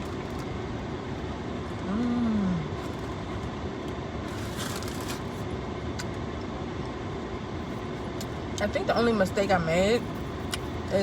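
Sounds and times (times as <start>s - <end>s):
air-conditioning fan blowing: 0.0s - 11.0s
woman humming while chewing: 1.8s - 2.8s.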